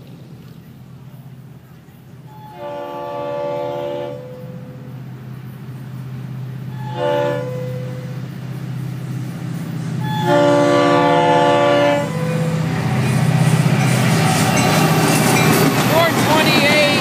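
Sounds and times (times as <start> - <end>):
diesel engine rumble: 0.0 - 17.0
train wheels on rails: 0.0 - 17.0
locomotive air horn blasts: 2.3 - 4.8, 6.7 - 8.1, 10.0 - 12.7.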